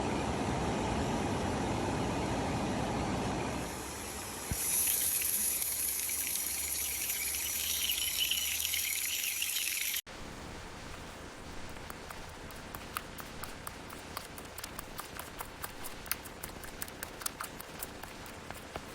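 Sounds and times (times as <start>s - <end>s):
fat sizzling in a pan: 3.6s - 10.0s.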